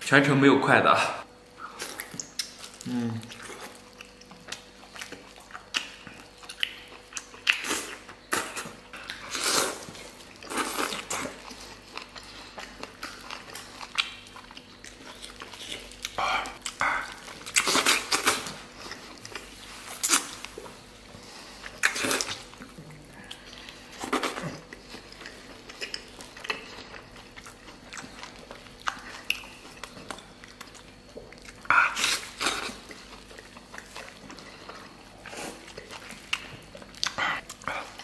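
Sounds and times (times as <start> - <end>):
wet chewing and biting: 1.7 - 38.0.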